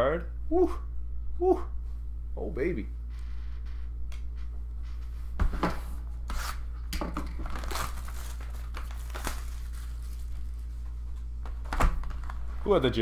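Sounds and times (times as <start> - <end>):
low hum: 0.0 - 6.9
plastic wrappers crinkling: 7.2 - 10.9.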